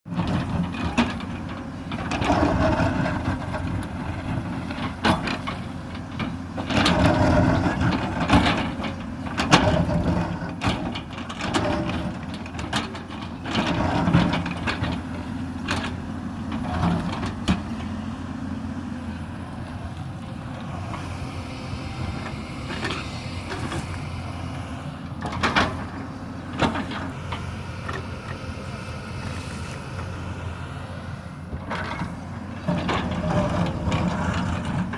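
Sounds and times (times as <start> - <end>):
excavator bucket clunks and knocks: 0.1 - 18.0, 25.1 - 28.4
excavator diesel engine under load: 0.1 - 34.9.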